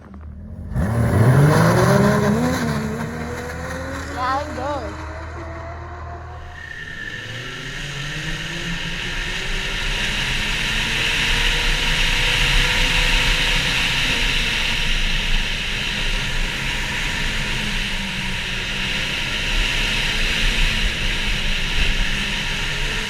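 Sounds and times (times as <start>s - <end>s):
snowmobile engine rumble: 0.0s - 6.5s.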